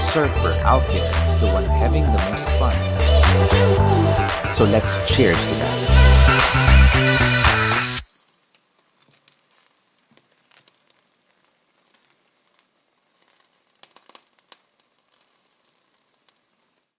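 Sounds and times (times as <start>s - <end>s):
faint clicks and crackles: 8.0s - 16.9s.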